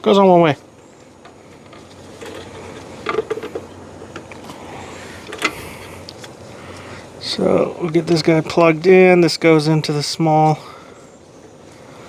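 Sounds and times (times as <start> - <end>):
plastic parts clicking and knocking: 1.6 - 4.5, 5.2 - 5.6.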